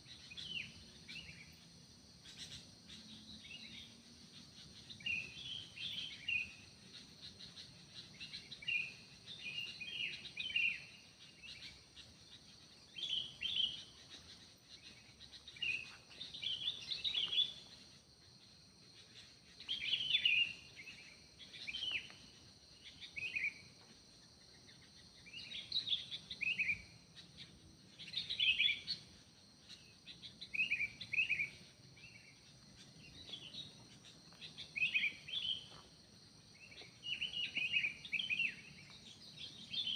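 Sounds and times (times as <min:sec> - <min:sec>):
birds chirping: 0:02.2 - 0:39.9.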